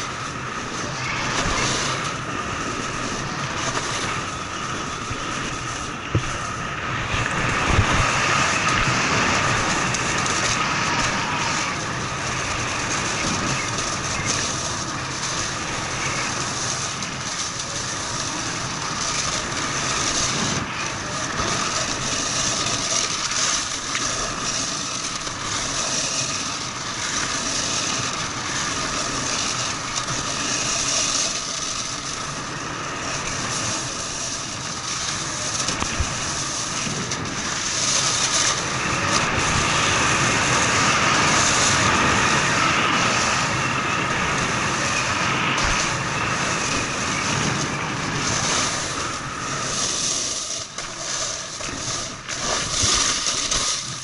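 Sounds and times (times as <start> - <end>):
snowboard scraping over snow: 0.0 - 54.0.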